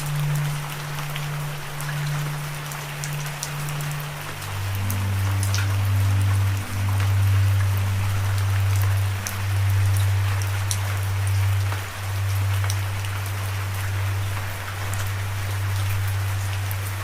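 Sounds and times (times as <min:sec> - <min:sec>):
low droning tone: 0:00.0 - 0:17.0
raindrops ticking: 0:00.0 - 0:17.0
steady rain hissing: 0:00.0 - 0:17.0.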